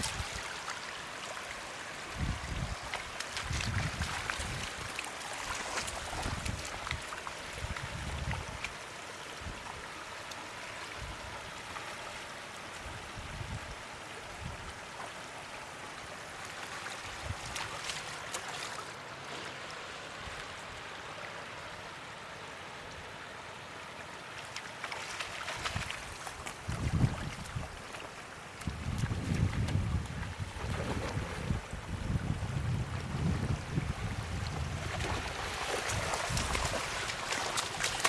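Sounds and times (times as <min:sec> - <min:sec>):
floodwater flowing and trickling: 0:00.0 - 0:38.0.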